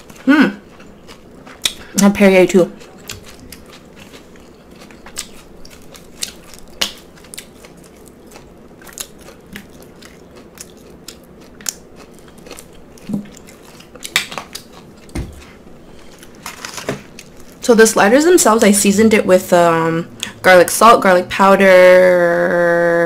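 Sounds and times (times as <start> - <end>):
chewing and biting food: 0.0 - 16.4.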